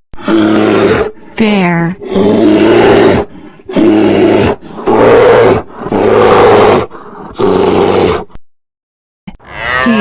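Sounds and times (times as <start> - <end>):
bear roaring: 0.2 - 1.3, 1.9 - 8.4.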